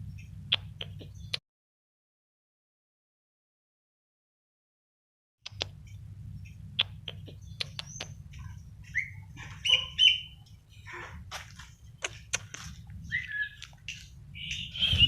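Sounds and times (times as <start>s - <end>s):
bird chirping: 0.0s - 1.4s, 5.5s - 11.0s, 11.6s - 15.0s
low hum: 0.0s - 1.4s, 5.5s - 15.0s.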